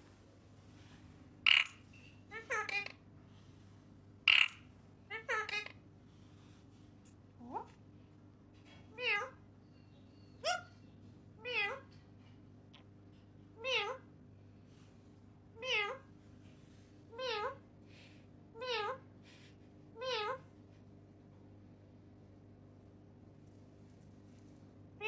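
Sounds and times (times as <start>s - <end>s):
parrot imitating cat meow: 8.9s - 9.4s, 15.6s - 16.0s.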